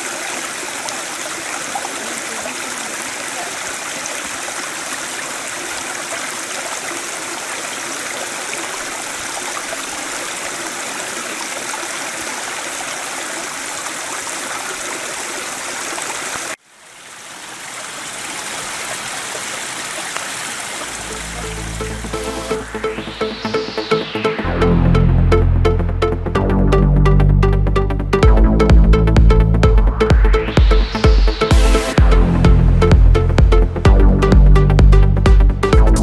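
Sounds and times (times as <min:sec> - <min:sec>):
stream water rushing: 0:00.0 - 0:22.6.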